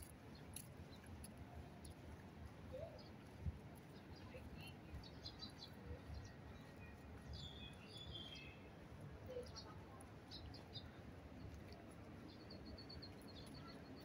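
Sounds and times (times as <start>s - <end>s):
small birds chirping: 2.7s - 8.7s, 9.3s - 14.0s.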